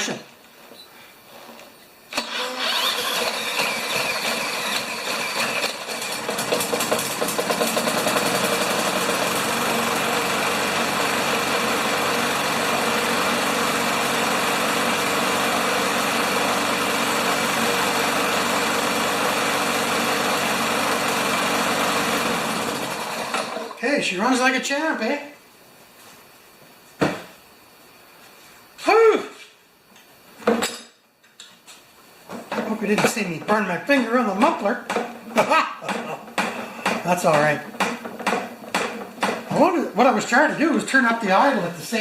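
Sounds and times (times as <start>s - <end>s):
lawn mower engine starting and running: 2.1s - 23.9s, 32.5s - 42.0s.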